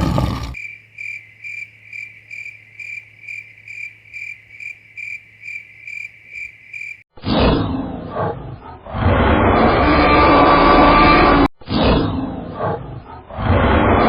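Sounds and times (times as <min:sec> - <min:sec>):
loud rough animal call: 0:00.0 - 0:00.7.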